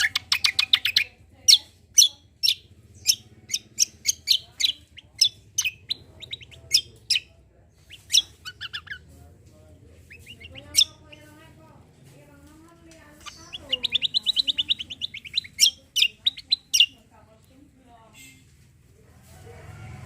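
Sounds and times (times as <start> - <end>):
songbird whistled song: 0.0 - 9.0, 10.0 - 11.3, 13.2 - 17.0.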